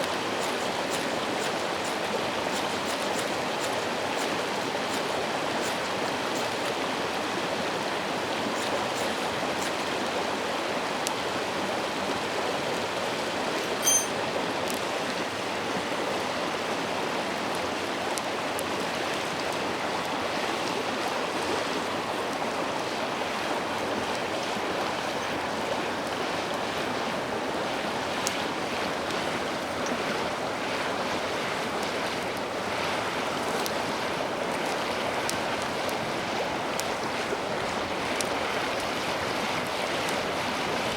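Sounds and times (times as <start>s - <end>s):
faint scattered ticks: 0.0s - 6.8s
river babbling over stones: 0.0s - 40.9s
sharp high-pitched clink: 13.6s - 14.2s.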